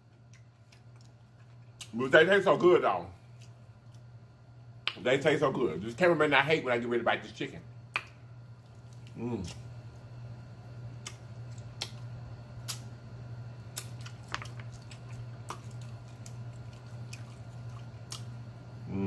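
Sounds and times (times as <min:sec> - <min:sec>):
wet chewing mouth sounds: 0:13.7 - 0:18.4.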